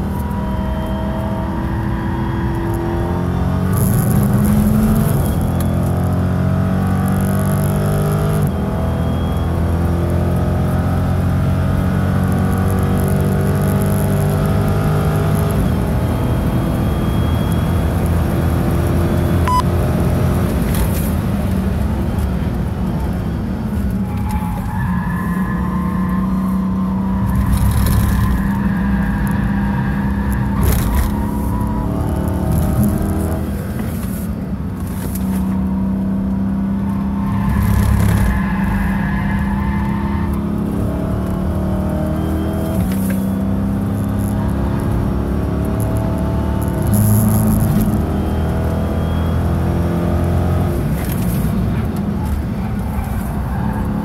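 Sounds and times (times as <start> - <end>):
car engine accelerating hard: 0.0 - 33.8, 34.8 - 54.0.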